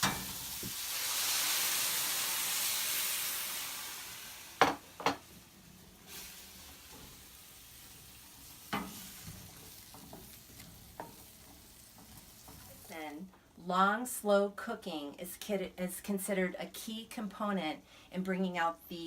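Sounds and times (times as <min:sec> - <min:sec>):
vegetables sizzling in a frying pan: 0:00.0 - 0:13.6.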